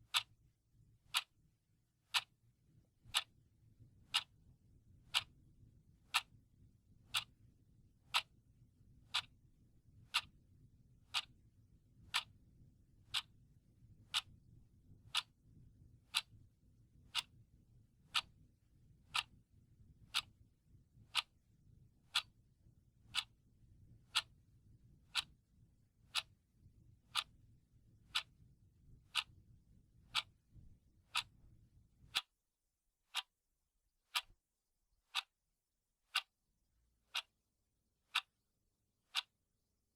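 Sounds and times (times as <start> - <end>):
clock ticking: 0.0 - 0.3, 1.1 - 1.3, 2.1 - 2.3, 3.0 - 3.3, 4.1 - 4.3, 5.1 - 5.3, 8.1 - 8.3, 9.1 - 9.3, 11.1 - 11.3, 12.1 - 12.3, 14.1 - 14.3, 16.1 - 16.4, 17.1 - 17.4, 18.1 - 18.3, 19.1 - 19.4, 21.1 - 21.3, 22.1 - 22.3, 23.1 - 23.4, 24.1 - 24.4, 25.1 - 25.3, 26.1 - 26.3, 27.1 - 27.4, 28.1 - 28.4, 29.1 - 29.4, 30.1 - 30.4, 31.1 - 31.4, 32.1 - 32.3, 33.1 - 33.3, 34.1 - 34.3, 35.1 - 35.3, 36.1 - 36.3, 37.1 - 37.4, 38.1 - 38.4, 39.1 - 39.3.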